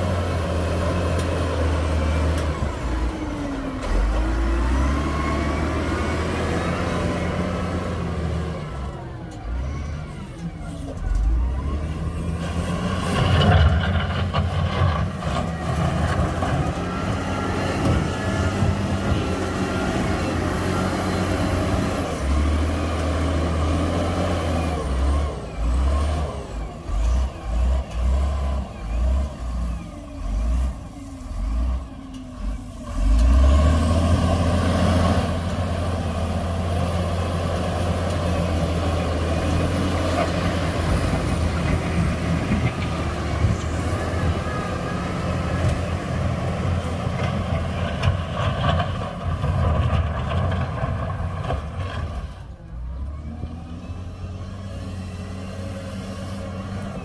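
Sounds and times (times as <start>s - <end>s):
heavy diesel engine revving: 0.0s - 57.0s.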